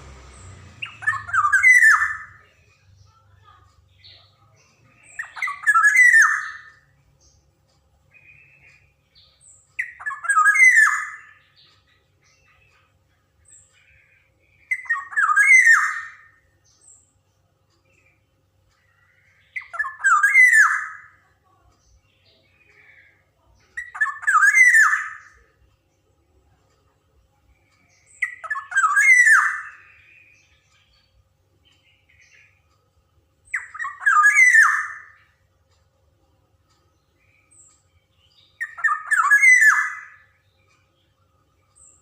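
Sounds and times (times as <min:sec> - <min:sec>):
harsh scratchy bird call: 0:00.7 - 0:02.4.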